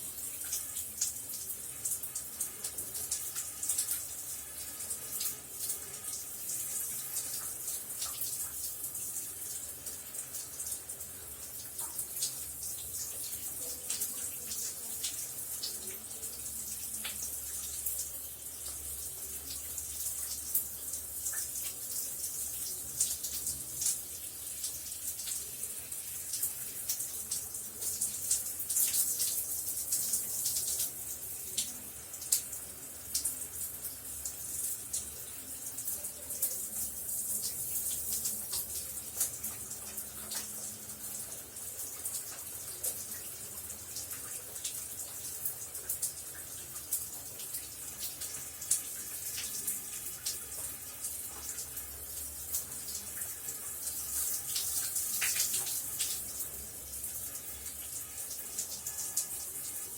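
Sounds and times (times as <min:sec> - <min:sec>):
water splattering on hard surface: 0:11.5 - 0:59.9
shower water spraying: 0:33.1 - 0:59.9.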